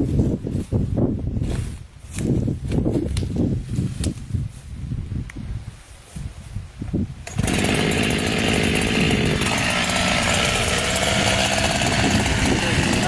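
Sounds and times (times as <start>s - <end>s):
chainsaw running: 7.2s - 13.0s.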